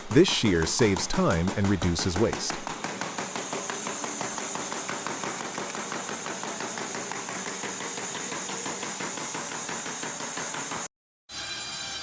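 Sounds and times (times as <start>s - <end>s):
shear chopping wooden slats: 0.0s - 9.4s.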